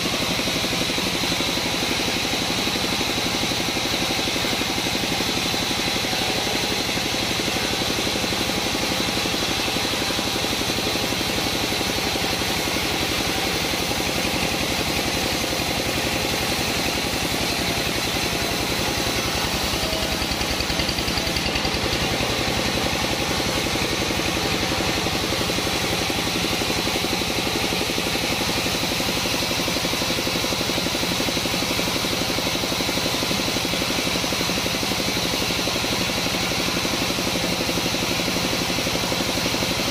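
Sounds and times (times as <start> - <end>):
saw high whine: 0.0 - 31.1
sawmill engine hum: 0.0 - 39.9.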